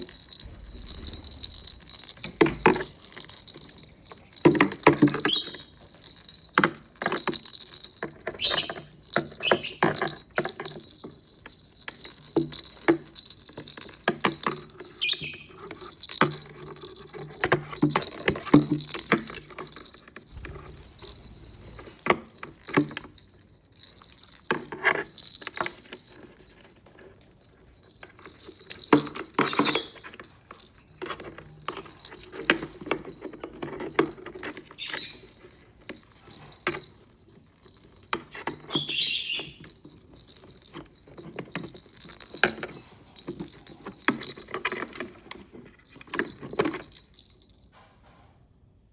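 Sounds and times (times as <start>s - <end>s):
bird toy jingling and clinking: 0.0s - 47.9s
small taps and rattles: 1.5s - 15.0s, 15.6s - 38.9s, 39.6s - 48.4s
parrot shrill call: 8.4s - 9.9s, 15.0s - 15.5s, 38.7s - 39.6s.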